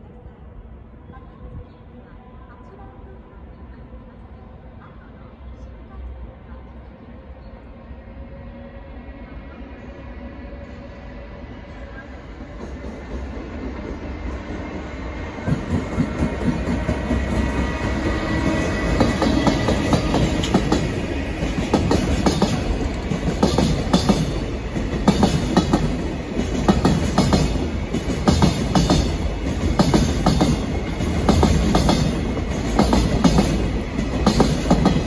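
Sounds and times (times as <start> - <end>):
freight train passing: 0.0 - 35.0.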